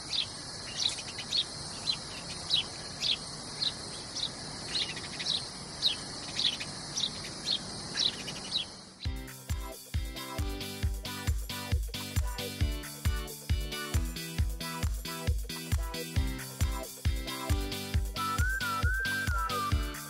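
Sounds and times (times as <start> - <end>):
bird chirping: 0.0 - 9.2
music with a beat: 9.1 - 20.0.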